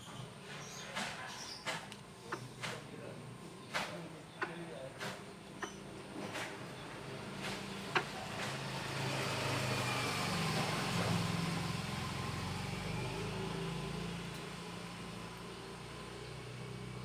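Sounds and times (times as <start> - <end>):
vehicle engine passing by: 6.9 - 17.0.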